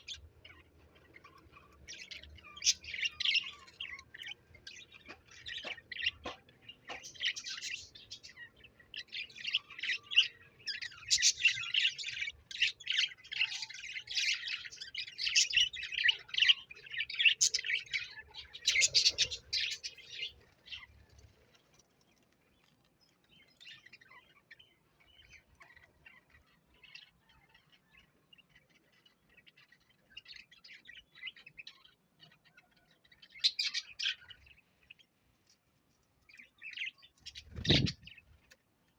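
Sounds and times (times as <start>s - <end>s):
parrot chirping and chattering: 0.0s - 20.4s.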